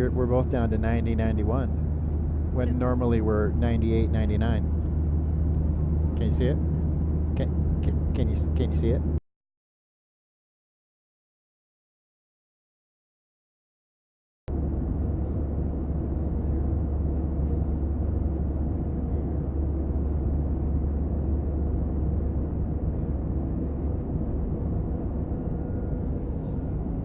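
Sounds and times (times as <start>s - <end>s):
airliner cabin rumble: 0.0s - 9.2s, 14.5s - 27.0s.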